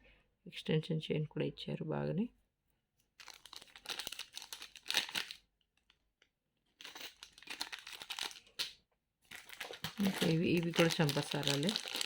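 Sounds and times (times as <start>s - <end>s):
plastic packaging crinkling: 3.2s - 5.9s, 6.7s - 12.0s.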